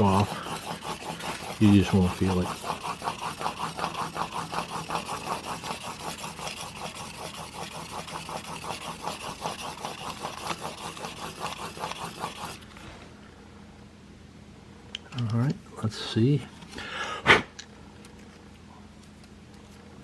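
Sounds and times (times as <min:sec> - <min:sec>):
blade rasping on sharpening plate: 0:00.0 - 0:12.6.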